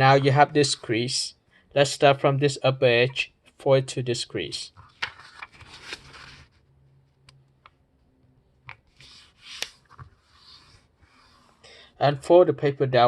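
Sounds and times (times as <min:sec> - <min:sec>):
paper rustling and sliding: 0:04.8 - 0:06.6, 0:09.0 - 0:11.6.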